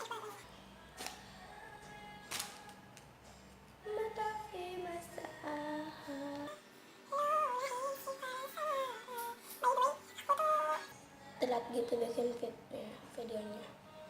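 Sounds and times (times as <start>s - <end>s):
high voice singing: 0.0s - 3.0s, 3.8s - 11.5s.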